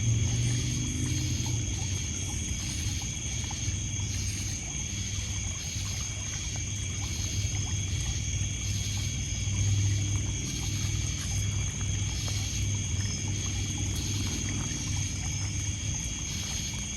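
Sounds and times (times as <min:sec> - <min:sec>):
low rumble: 0:00.0 - 0:05.2
crickets and insects trilling: 0:00.0 - 0:16.9
water lapping on pebbles: 0:00.0 - 0:16.9.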